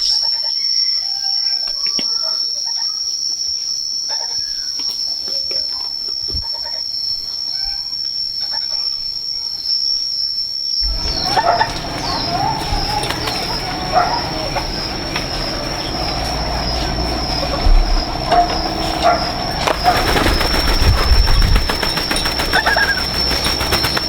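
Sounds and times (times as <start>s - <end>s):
faint insect chirps: 0.2s - 24.0s
high-pitched insect drone: 10.6s - 24.0s
bird-like chirps: 10.8s - 24.0s
rushing background noise: 10.8s - 24.0s.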